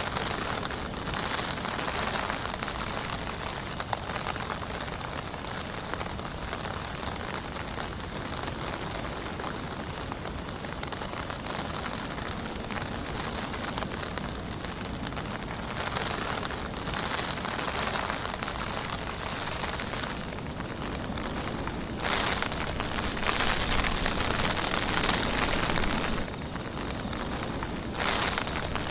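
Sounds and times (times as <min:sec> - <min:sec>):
heavy rain falling: 0:00.0 - 0:28.9.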